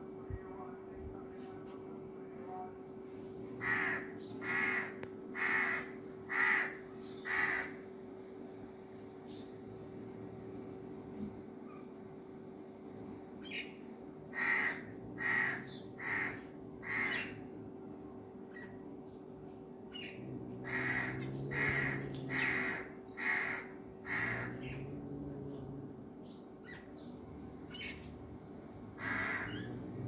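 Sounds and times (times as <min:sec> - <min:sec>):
cawing bird calls: 0:03.6 - 0:07.9, 0:13.5 - 0:17.5, 0:19.9 - 0:24.9, 0:28.9 - 0:29.8
low hum: 0:23.8 - 0:30.0.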